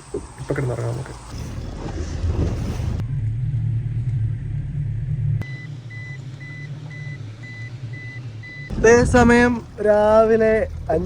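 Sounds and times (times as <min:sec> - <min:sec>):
low motor rumble: 0:00.0 - 0:11.0
high electronic beeping: 0:05.4 - 0:09.7.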